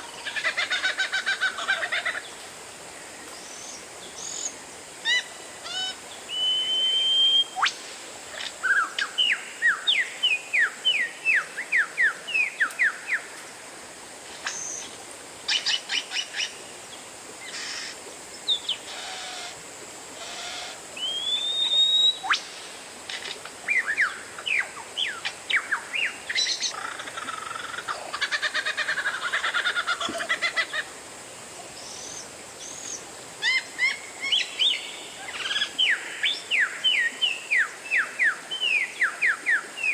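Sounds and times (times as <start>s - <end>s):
bird singing whistled notes: 6.3s - 7.7s, 21.0s - 22.5s.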